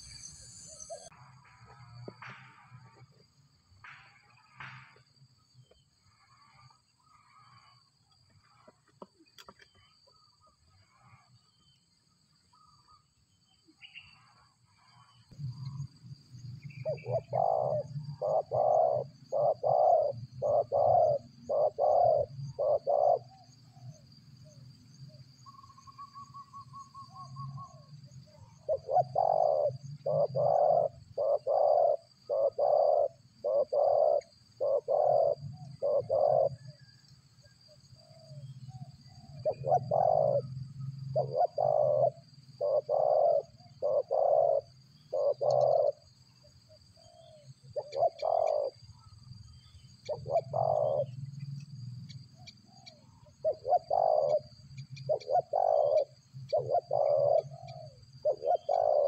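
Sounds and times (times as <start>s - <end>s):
bird hooting: 0.0s - 1.1s, 16.6s - 24.6s, 25.4s - 36.9s, 39.1s - 46.2s, 47.0s - 51.2s, 52.4s - 59.0s.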